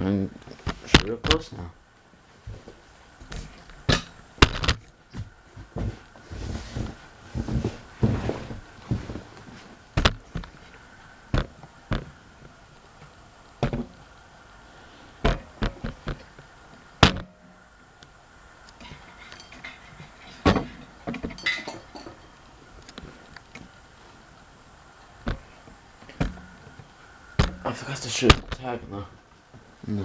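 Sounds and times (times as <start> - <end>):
clicks and knocks of handled parts: 3.3 - 5.1, 15.2 - 23.7.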